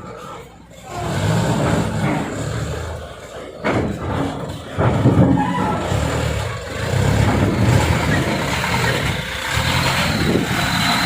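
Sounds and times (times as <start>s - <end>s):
truck diesel engine under load: 0.0s - 11.0s.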